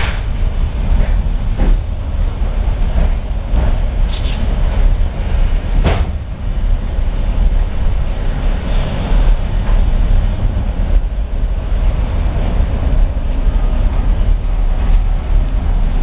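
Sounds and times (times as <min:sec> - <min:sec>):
train rumbling on track: 0:00.0 - 0:16.0.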